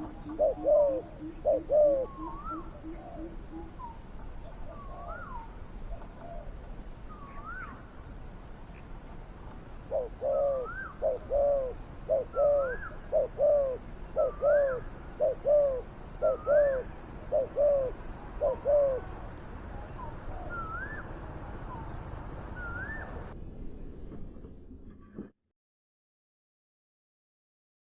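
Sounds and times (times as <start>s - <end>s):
dove cooing: 0.0s - 6.5s, 9.8s - 23.3s.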